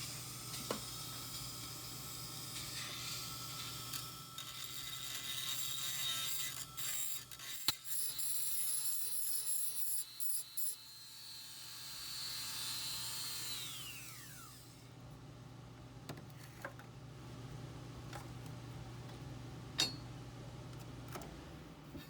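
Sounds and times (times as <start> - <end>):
rotary tool grinding metal: 0.0 - 10.8.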